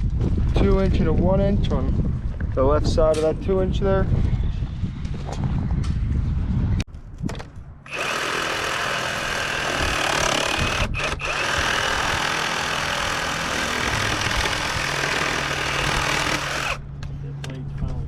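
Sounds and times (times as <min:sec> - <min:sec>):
power tool running: 0:07.9 - 0:16.8.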